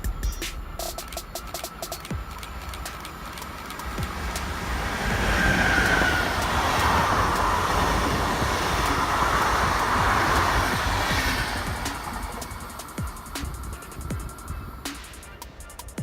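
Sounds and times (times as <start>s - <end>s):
train passing at speed: 0.0s - 16.0s.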